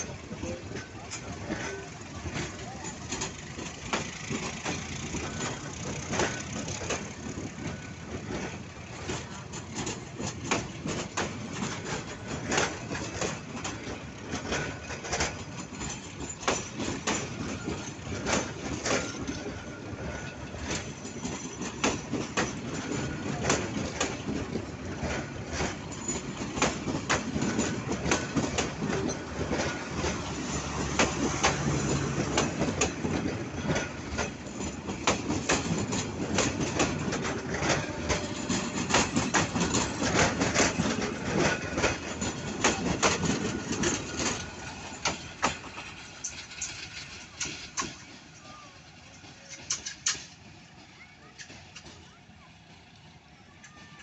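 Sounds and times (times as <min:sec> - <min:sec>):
locomotive engine hum: 0:00.0 - 0:54.0
train wheels clanking: 0:00.0 - 0:54.0.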